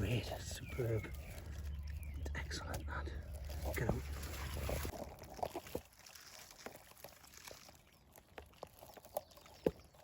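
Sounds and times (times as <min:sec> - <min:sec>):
twigs and bushes rustling: 0:00.0 - 0:10.0
twigs snapping: 0:01.0 - 0:10.0.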